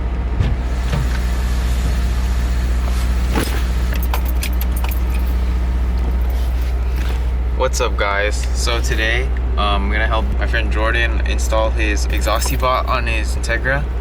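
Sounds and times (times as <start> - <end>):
car engine droning: 0.0 - 14.0
keys jingling: 3.4 - 7.2, 12.1 - 13.1.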